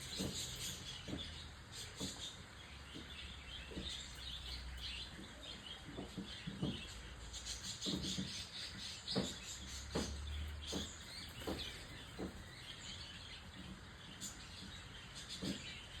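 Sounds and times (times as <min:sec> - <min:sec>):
small birds chirping: 0:00.0 - 0:16.0
soft knocks: 0:09.1 - 0:12.6.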